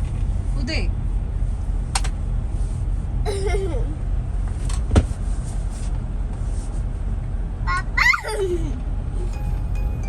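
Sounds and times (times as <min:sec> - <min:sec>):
truck engine running: 0:07.0 - 0:10.0.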